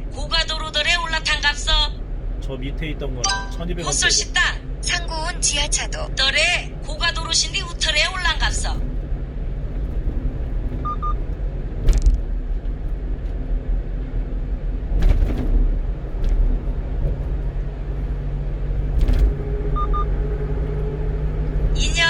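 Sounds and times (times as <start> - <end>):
truck engine and tyre rumble: 0.0 - 22.0
road thumps: 6.7 - 13.1.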